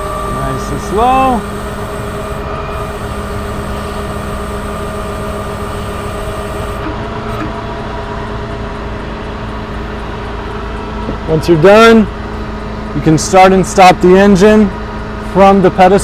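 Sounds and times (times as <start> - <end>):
diesel engine running: 0.0 - 16.0
high hydraulic hiss: 0.4 - 6.9.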